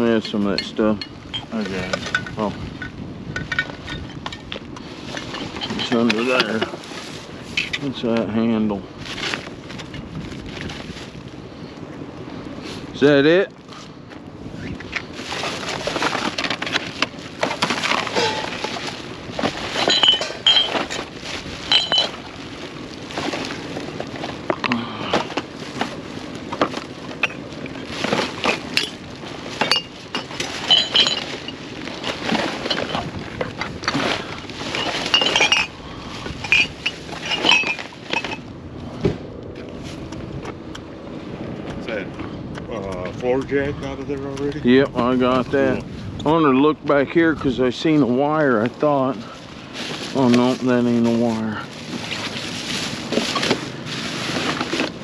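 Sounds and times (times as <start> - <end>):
metal and glass clattering: 0.0 - 6.8, 15.3 - 22.4, 26.5 - 38.5, 52.0 - 54.9
junk clinking and rattling: 0.0 - 11.1, 14.8 - 38.6, 47.4 - 55.0.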